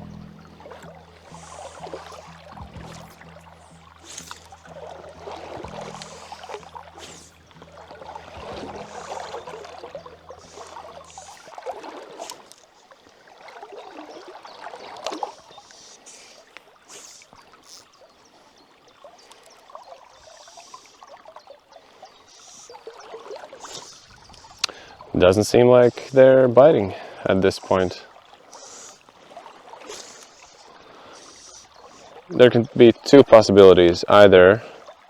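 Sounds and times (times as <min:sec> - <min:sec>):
low background music: 0:00.0 - 0:11.2
river water rushing and splashing: 0:00.0 - 0:35.0.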